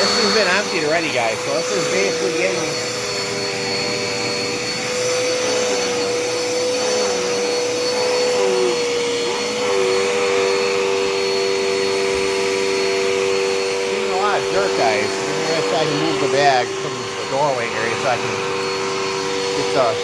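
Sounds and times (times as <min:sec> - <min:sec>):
upright vacuum cleaner running: 0:00.0 - 0:20.0.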